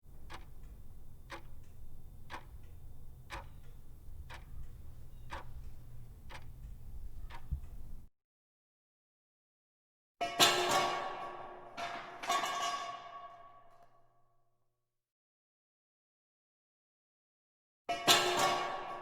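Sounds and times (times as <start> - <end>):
sharp ticking: 0.0 - 8.1
low steady hum: 0.1 - 8.1.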